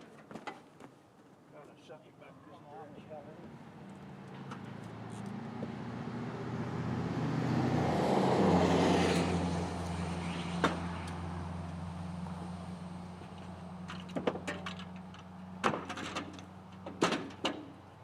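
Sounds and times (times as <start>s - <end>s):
tractor engine running: 9.4s - 18.0s.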